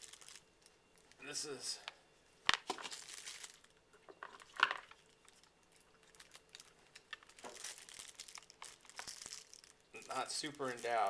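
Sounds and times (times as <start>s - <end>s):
plastic packaging crinkling: 0.0s - 1.2s, 2.5s - 11.0s
rustling: 5.2s - 11.0s.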